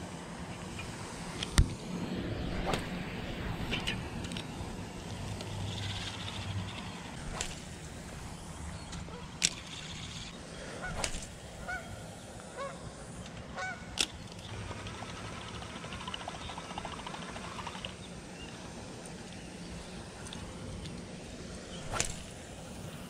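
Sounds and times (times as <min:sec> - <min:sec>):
geese honking: 0:11.6 - 0:11.9, 0:13.6 - 0:13.9
reel winding line ticking: 0:14.0 - 0:18.0.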